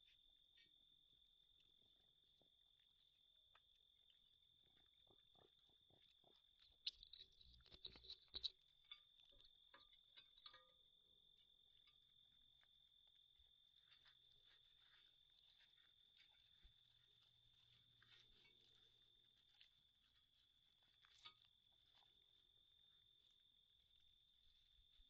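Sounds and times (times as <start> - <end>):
raccoons rummaging at bird feeder: 4.6 - 11.0.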